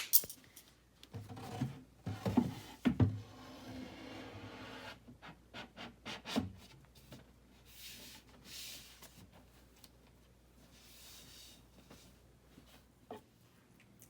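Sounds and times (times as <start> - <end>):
wooden shelf scraping: 1.2 - 5.0.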